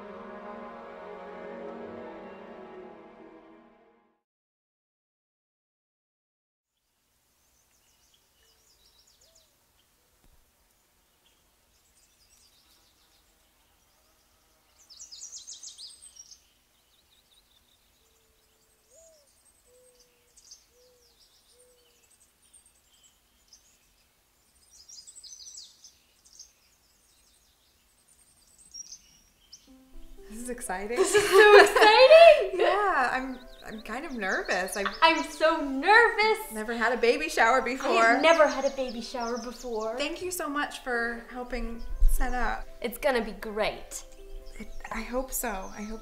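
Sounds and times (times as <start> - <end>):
birds chirping: 7.4 - 46.0
lower bird call: 18.0 - 22.2.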